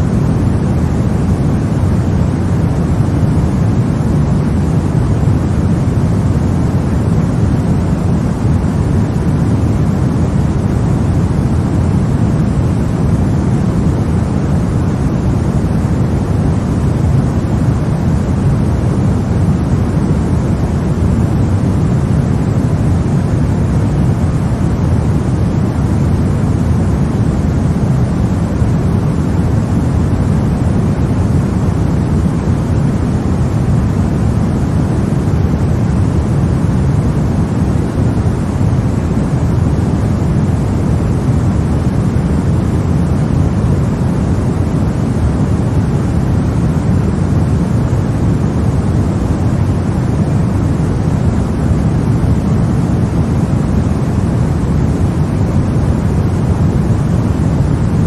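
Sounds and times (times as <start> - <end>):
low white noise rumble: 0.0 - 58.0.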